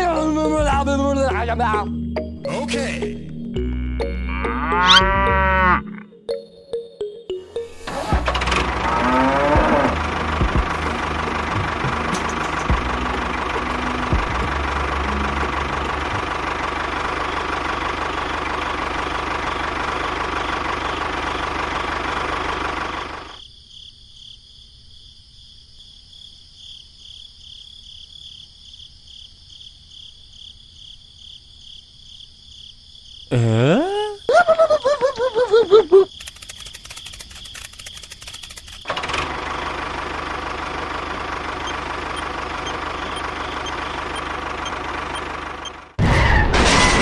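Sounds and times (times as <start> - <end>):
engine running and knocking: 8.1 - 23.4, 36.2 - 46.0.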